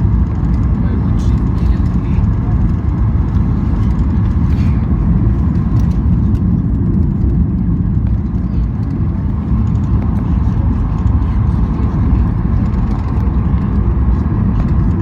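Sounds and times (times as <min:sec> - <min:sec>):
engines and rushing air rumble: 0:00.0 - 0:15.0.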